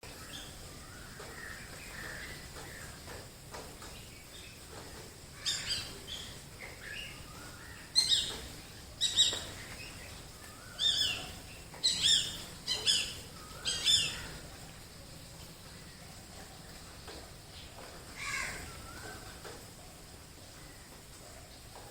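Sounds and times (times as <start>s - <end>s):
quiet bird chirps: 0.0s - 21.9s
sharp high bird calls: 9.0s - 14.4s.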